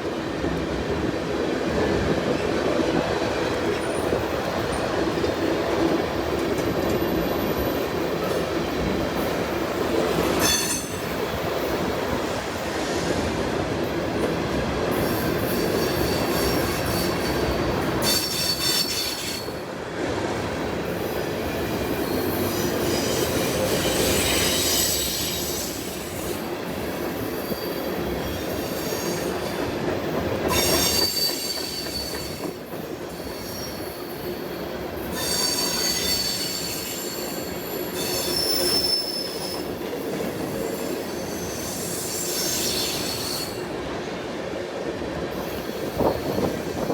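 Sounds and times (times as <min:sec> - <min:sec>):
freight train rumble and clatter: 0:00.0 - 0:46.9
high-pitched wheel squeal: 0:35.1 - 0:39.7.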